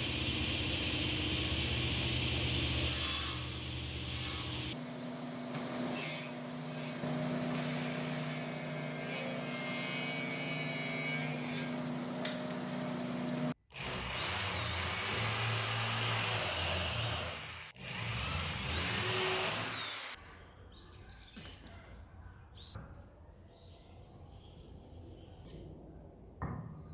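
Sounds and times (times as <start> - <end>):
power tool motor under load: 11.1 - 20.2.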